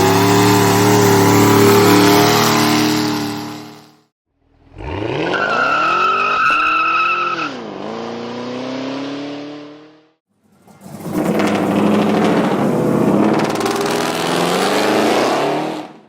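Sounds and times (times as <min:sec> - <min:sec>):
steady high-pitched tone: 0:00.0 - 0:03.9
car accelerating hard: 0:04.6 - 0:16.0.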